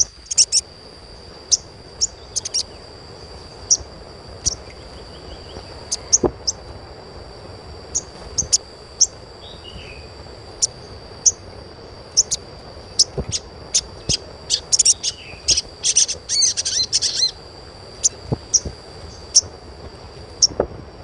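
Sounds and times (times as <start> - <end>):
bird giving high chirps: 0.0 - 0.7, 1.5 - 2.8, 3.6 - 6.6, 12.1 - 17.4
high-pitched insect-like drone: 0.0 - 21.0.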